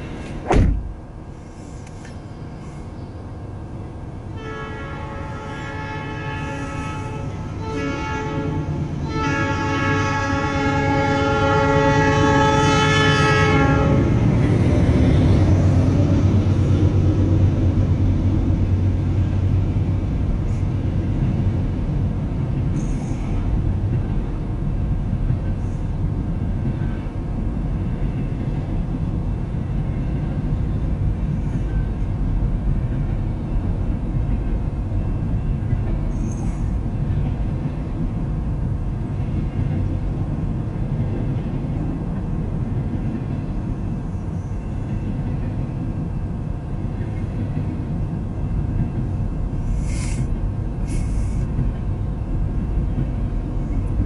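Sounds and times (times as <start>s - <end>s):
freight train rolling past: 0.0s - 54.0s
locomotive air horn: 4.3s - 14.2s.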